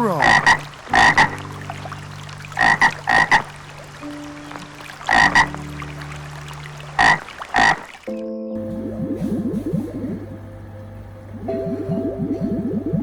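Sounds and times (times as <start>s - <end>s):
steady low hum: 0.0s - 7.9s, 8.6s - 13.0s
frog croaking: 0.0s - 8.1s.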